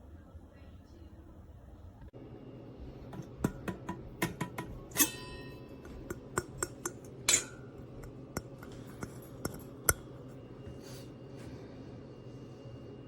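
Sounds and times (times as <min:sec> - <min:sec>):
taps and clicks of percolator parts: 0:03.2 - 0:04.7, 0:05.9 - 0:07.4, 0:08.0 - 0:10.0
metal clinks ringing: 0:04.9 - 0:06.0.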